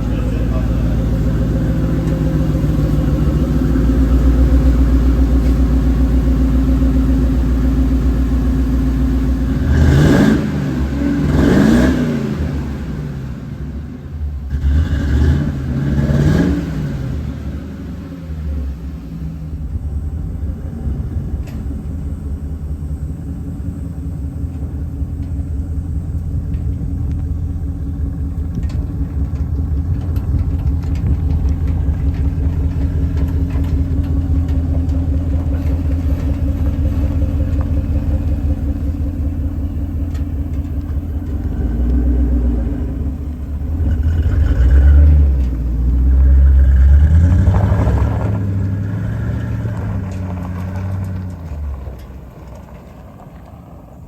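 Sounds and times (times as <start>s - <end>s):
truck engine idling and revving: 0.0s - 54.0s.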